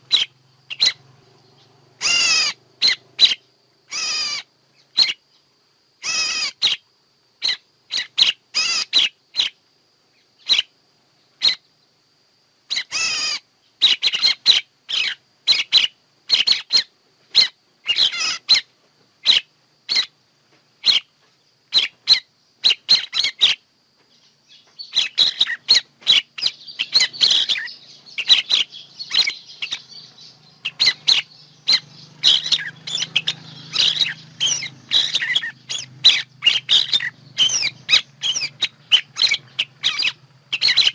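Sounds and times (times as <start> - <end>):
faint high whine: 0.0 - 40.9
songbirds chirping: 0.0 - 40.9.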